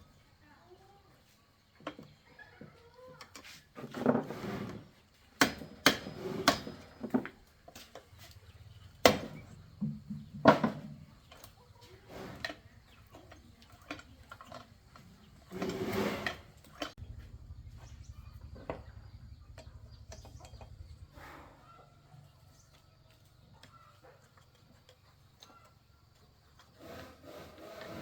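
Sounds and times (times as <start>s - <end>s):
knocks and clatter: 5.4s - 21.2s
scraping rustles: 10.8s - 17.2s.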